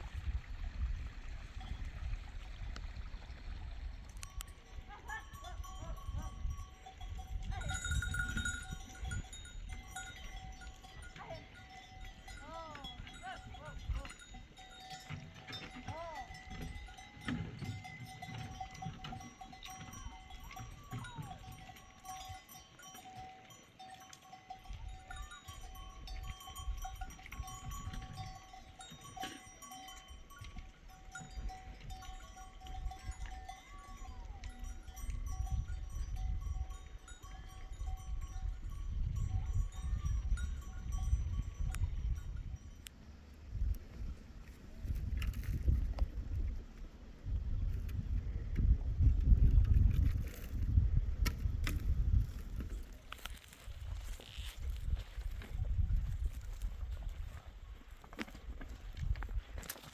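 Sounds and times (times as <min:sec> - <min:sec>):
livestock bells ringing: 0:04.2 - 0:43.0.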